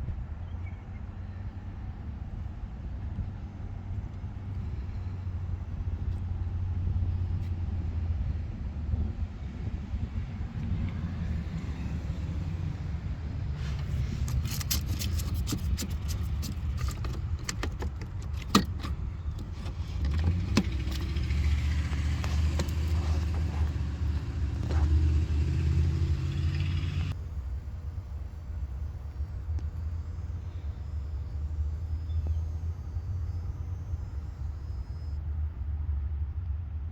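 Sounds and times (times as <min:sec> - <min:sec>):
car engine idling: 0:09.8 - 0:35.5
sharp clicks and rattles: 0:13.6 - 0:27.2.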